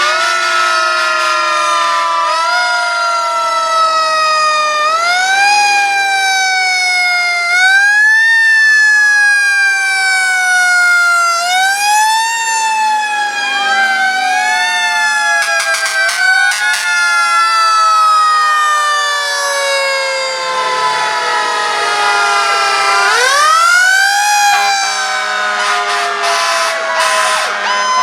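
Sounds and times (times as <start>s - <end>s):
fire truck sirens wailing: 0.0s - 28.0s.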